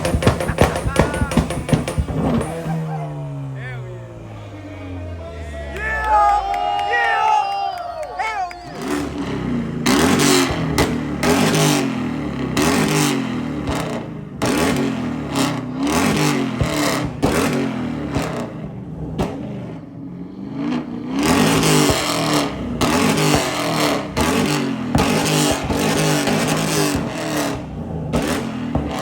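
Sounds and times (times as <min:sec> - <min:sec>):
exhaust cracks and pops: 0:00.0 - 0:02.8, 0:13.6 - 0:19.5, 0:21.4 - 0:29.0
car engine revving: 0:00.0 - 0:29.0.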